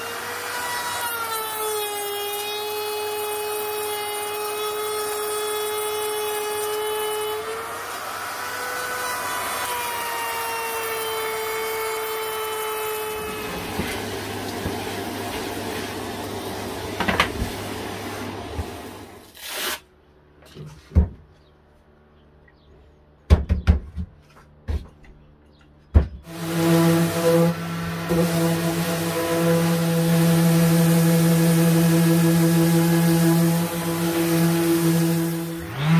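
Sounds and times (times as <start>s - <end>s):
power tool motor running: 0.0s - 18.9s, 26.3s - 35.9s.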